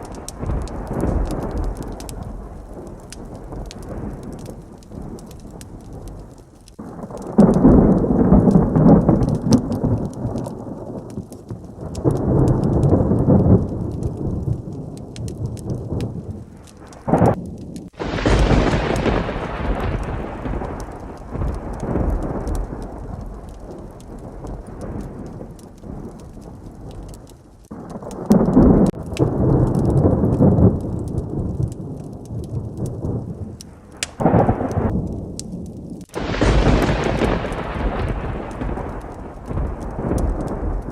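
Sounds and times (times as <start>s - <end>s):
heavy rain: 0.0s - 40.9s
sharp close thunderclap: 0.0s - 40.9s
thunder rumbling: 0.0s - 40.9s.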